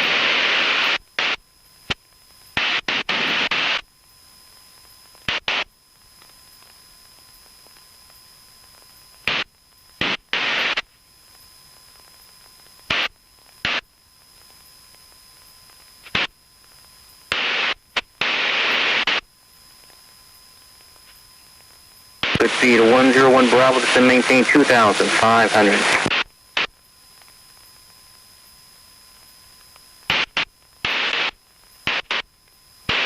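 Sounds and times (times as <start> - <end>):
radio static bursts: 0.0 - 1.4, 2.6 - 3.8, 5.3 - 5.7, 9.3 - 10.9, 12.9 - 13.8, 16.0 - 16.3, 17.3 - 19.2, 22.2 - 26.7, 30.1 - 32.3
radio hiss: 0.0 - 33.0.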